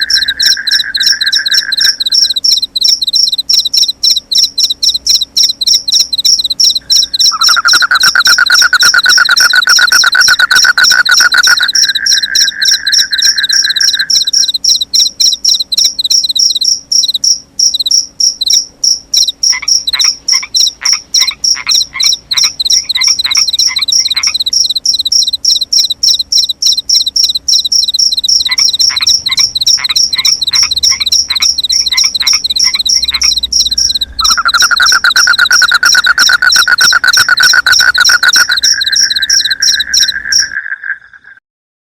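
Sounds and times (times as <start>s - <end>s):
crickets chirping: 0.0s - 41.4s
frogs trilling and croaking: 0.0s - 41.4s.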